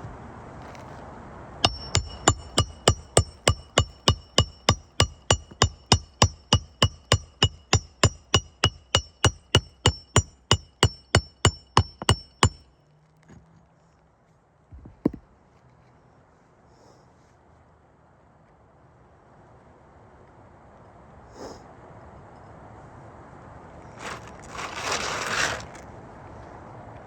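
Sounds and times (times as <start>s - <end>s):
hammer striking metal tool: 1.6s - 12.7s.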